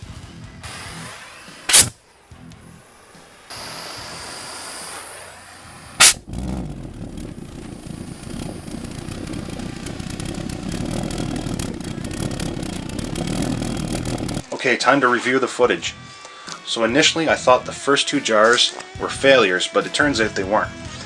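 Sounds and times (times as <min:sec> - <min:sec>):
brief hiss: 0:00.0 - 0:11.8
pulse jet rough rumble: 0:00.4 - 0:14.5
pulse jet bang: 0:01.6 - 0:02.0, 0:03.5 - 0:14.4.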